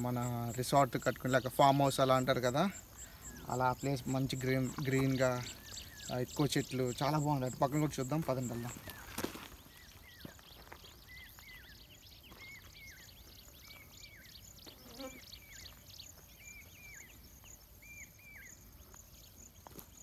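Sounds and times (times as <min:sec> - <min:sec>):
insect chirring: 0:00.0 - 0:20.0.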